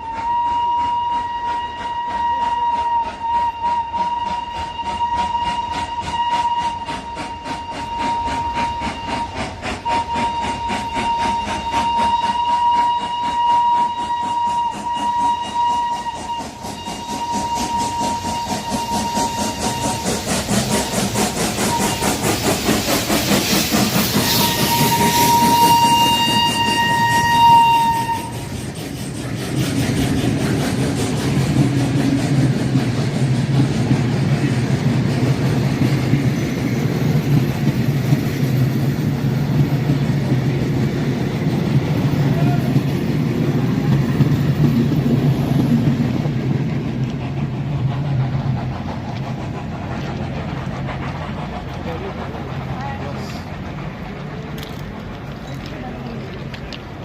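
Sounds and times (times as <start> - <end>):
steam locomotive whistle: 0.0 - 29.7, 41.5 - 46.4
steam train rhythmic chugging: 0.0 - 57.0.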